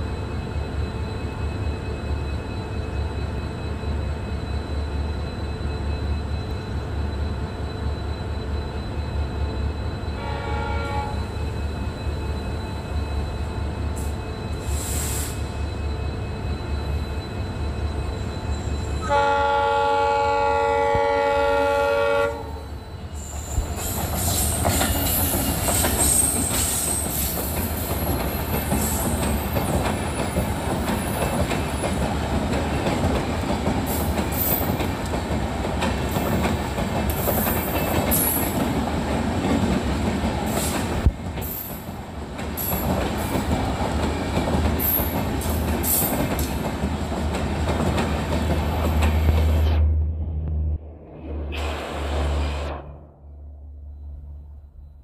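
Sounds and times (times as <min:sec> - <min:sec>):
locomotive horn blast: 0:10.2 - 0:11.3, 0:19.0 - 0:22.7
train wheels rattling over rails: 0:23.3 - 0:49.6.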